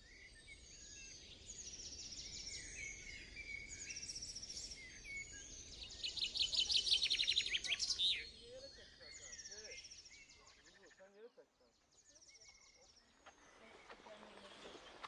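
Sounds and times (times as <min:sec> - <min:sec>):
songbirds singing: 0:00.0 - 0:15.0
faint low rumble: 0:10.4 - 0:15.0.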